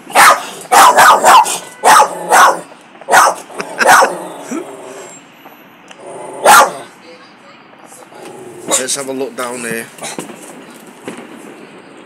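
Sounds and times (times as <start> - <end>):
dog barking: 0.1 - 4.2, 6.4 - 6.9.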